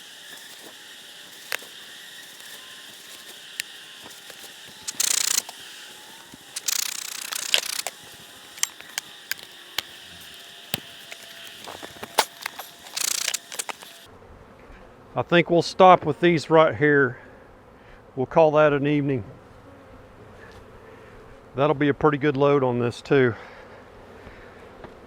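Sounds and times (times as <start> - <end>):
bees buzzing: 0.0 - 14.1, 23.1 - 25.0
rasping ratchet-like bursts: 0.0 - 14.1
sharp clicks: 2.3 - 5.6, 6.3 - 14.1.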